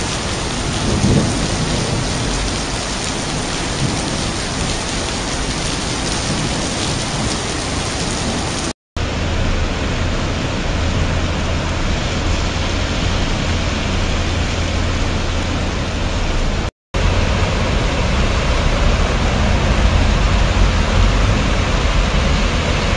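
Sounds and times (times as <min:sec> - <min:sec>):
heavy rain pouring: 0:00.0 - 0:22.9
low thunder rumble: 0:00.0 - 0:22.9.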